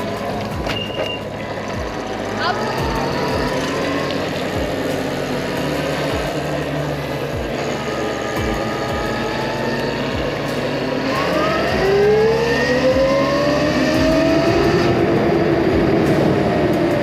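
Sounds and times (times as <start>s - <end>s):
motor whine rising in pitch: 0.0s - 17.0s
wind and road noise: 0.0s - 17.0s.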